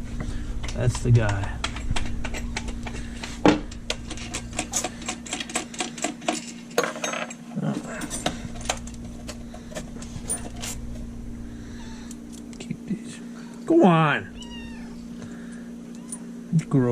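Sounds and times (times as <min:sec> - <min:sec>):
steady low hum: 0:00.0 - 0:16.9
metal tools clinking: 0:03.7 - 0:10.8, 0:15.5 - 0:16.3.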